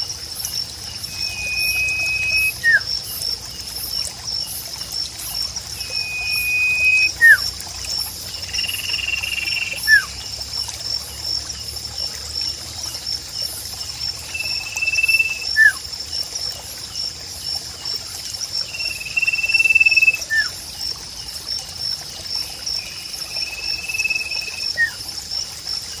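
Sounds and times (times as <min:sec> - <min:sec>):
trickling water: 0:00.0 - 0:26.0
songbird whistling call: 0:01.1 - 0:02.9, 0:05.8 - 0:07.5, 0:08.5 - 0:10.1, 0:14.3 - 0:15.8, 0:18.7 - 0:20.5, 0:23.3 - 0:25.0.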